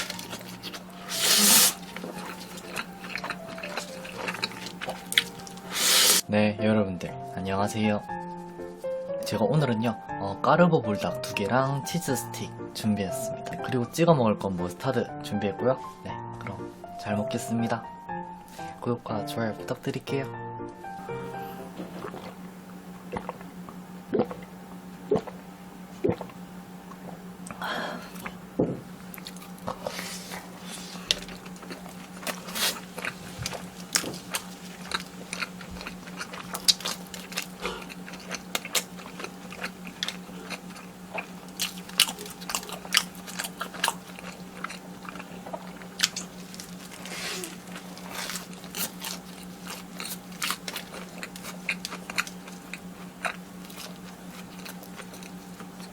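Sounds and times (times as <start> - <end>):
crunchy bites and chewing: 0.0 - 6.2, 21.6 - 24.5, 26.0 - 55.9
steady low hum: 0.0 - 6.4, 17.7 - 55.9.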